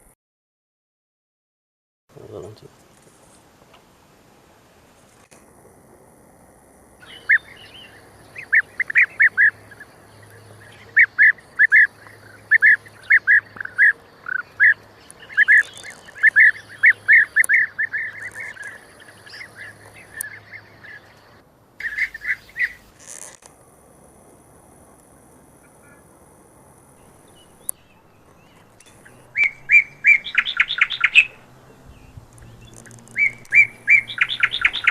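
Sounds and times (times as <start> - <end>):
bird calling in sharp notes: 27.1 - 34.9.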